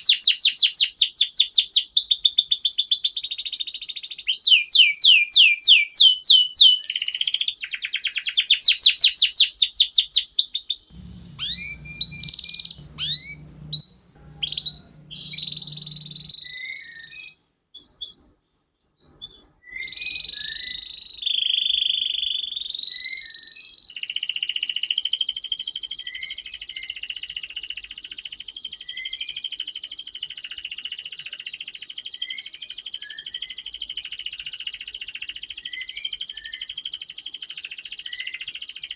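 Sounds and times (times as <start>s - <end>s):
canary singing: 0.0s - 18.3s.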